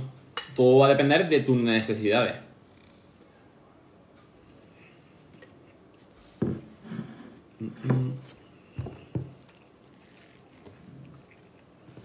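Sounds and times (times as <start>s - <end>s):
man chewing mouth sounds: 9.0s - 12.0s.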